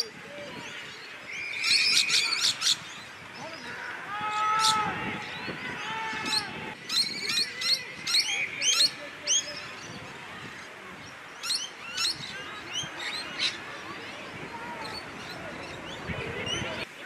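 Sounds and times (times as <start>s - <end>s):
long held shout: 3.8s - 6.8s.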